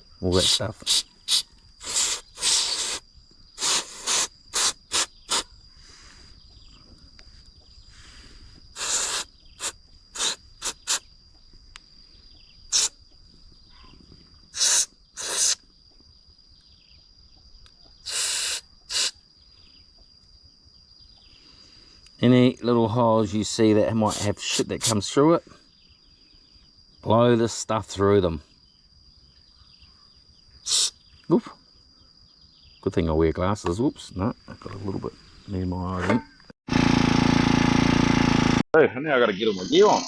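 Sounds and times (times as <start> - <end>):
faint high insect drone: 0.0 - 36.6, 38.8 - 40.0
hissing blasts of pressurised spray: 0.9 - 5.5, 8.7 - 11.0, 12.7 - 13.0, 14.6 - 15.6, 18.1 - 19.2.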